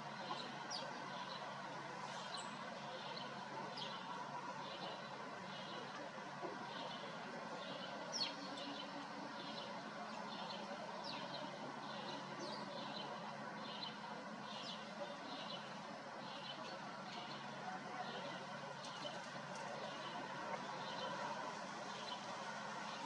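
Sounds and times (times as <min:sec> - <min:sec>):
outdoor background noise: 0:00.0 - 0:23.0
sparrows chirping: 0:06.6 - 0:21.2.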